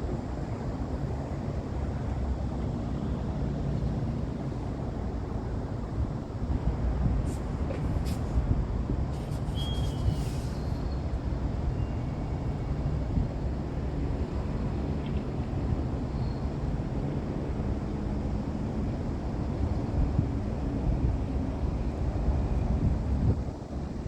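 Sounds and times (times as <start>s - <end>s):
wind buffeting microphone: 18.2s - 24.0s.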